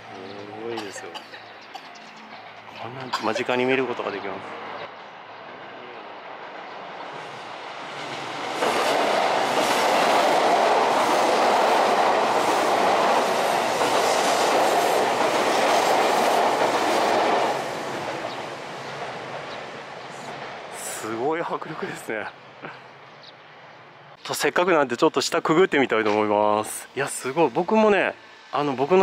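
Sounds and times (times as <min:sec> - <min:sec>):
train wheels clattering over bridge: 0:06.5 - 0:21.9.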